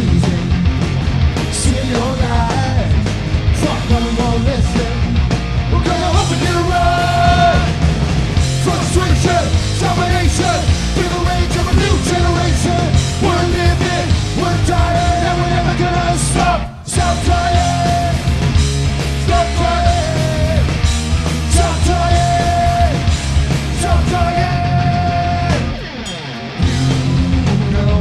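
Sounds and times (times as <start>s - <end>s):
punk rock band playing: 0.0s - 28.0s
shouted voices: 5.7s - 7.8s.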